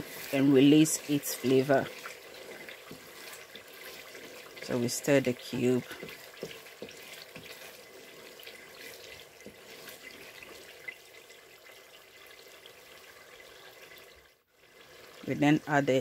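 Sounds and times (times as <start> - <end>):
paste sizzling in oil: 0.0 - 11.6.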